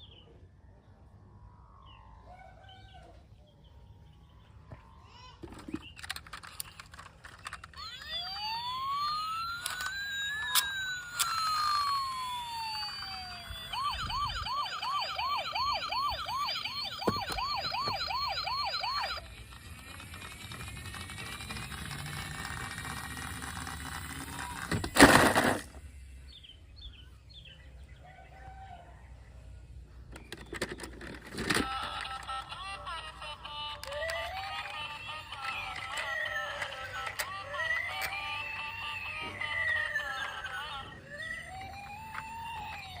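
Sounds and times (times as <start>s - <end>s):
electronic siren wailing and yelping: 7.6s - 22.6s, 31.6s - 43.0s.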